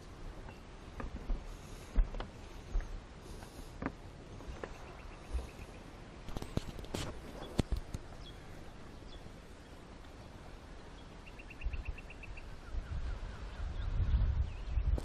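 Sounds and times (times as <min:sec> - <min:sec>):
bird chirping: 0:04.3 - 0:05.9, 0:07.3 - 0:15.0
soft falling bird calls: 0:04.3 - 0:13.6.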